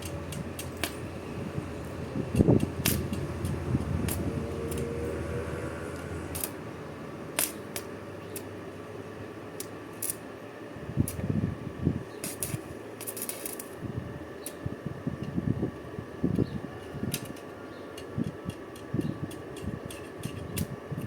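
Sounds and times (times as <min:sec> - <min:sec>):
rumbling handling noise: 0:00.0 - 0:08.5
steady low hum: 0:00.0 - 0:21.0
sharp clicks and knocks: 0:01.8 - 0:04.9.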